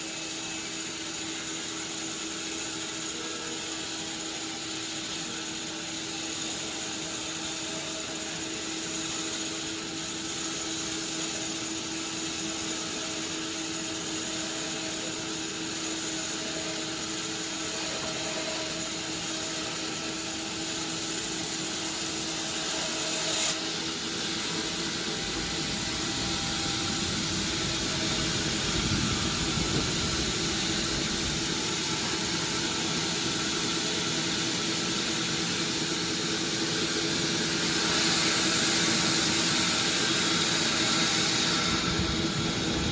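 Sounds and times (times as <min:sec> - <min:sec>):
high machine whine: 0:00.0 - 0:42.9
sawmill machinery humming: 0:00.0 - 0:42.9
deep machine rumble: 0:25.1 - 0:32.6.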